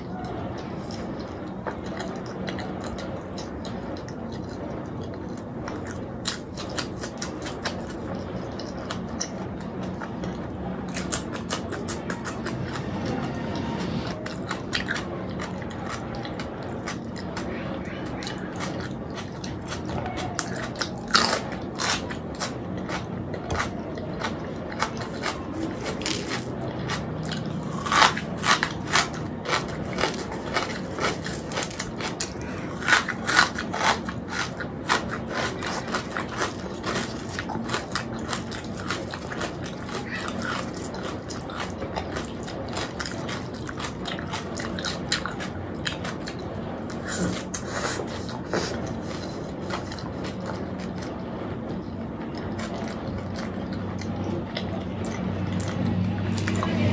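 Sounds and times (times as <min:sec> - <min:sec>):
wet chewing and biting: 0:00.0 - 0:51.3, 0:52.2 - 0:56.8.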